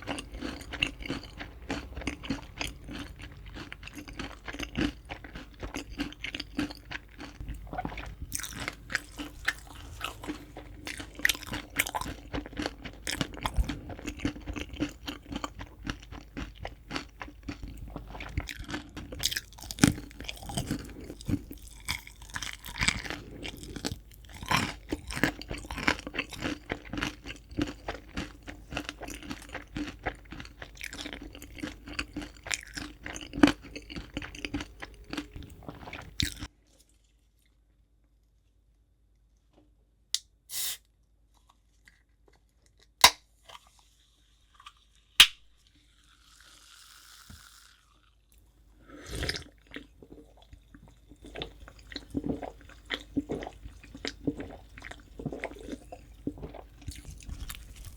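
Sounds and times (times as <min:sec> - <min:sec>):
fried chicken crunching: 0:00.0 - 0:36.5, 0:49.0 - 0:57.9.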